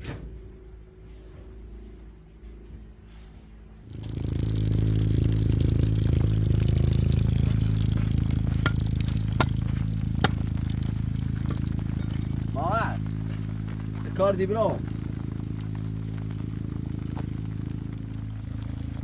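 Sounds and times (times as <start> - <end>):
motor humming: 3.9 - 19.0.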